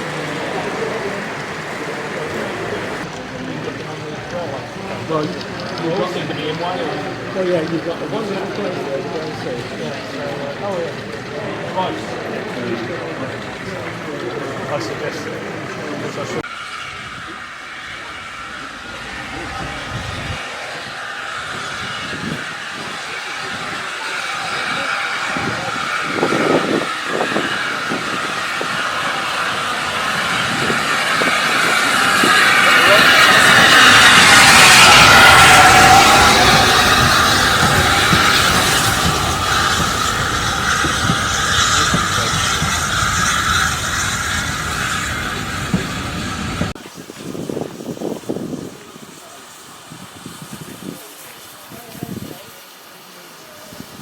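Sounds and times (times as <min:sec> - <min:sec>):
faint voices: 0:00.0 - 0:54.0
train rushing noise: 0:00.0 - 0:54.0.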